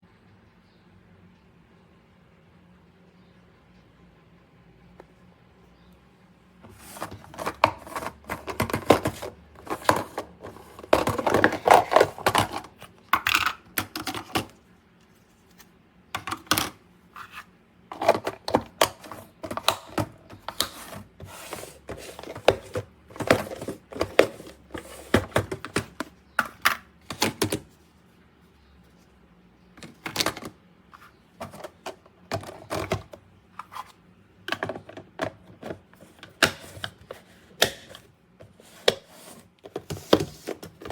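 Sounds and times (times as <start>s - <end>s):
plastic containers clattering: 6.6s - 14.6s, 16.2s - 27.8s, 29.8s - 40.9s.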